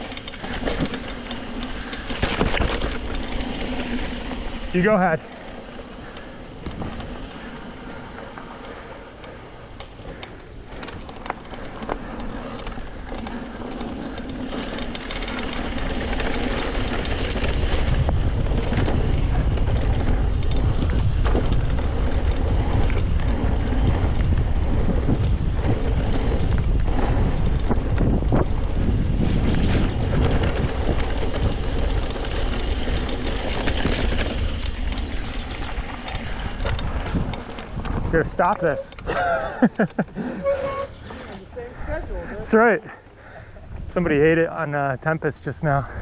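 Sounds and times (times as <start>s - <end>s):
tyres rumbling on dirt: 0.0s - 43.3s
bike clicks and clatter: 0.0s - 46.0s
wind rushing over microphone: 5.9s - 42.5s.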